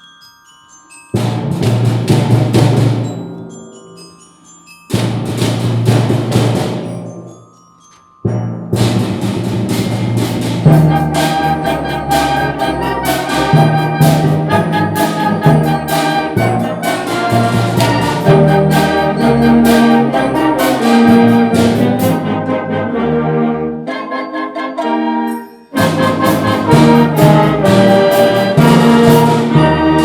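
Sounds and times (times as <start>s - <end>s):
percussion hits: 1.1s - 22.3s, 25.7s - 30.0s
brass holding chords: 10.6s - 30.0s.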